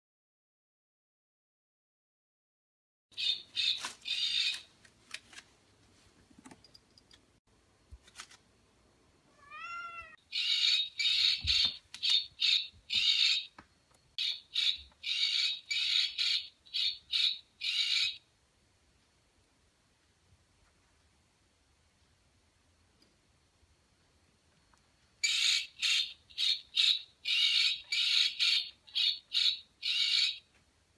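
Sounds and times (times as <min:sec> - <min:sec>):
harsh animal cries: 0:09.3 - 0:10.2.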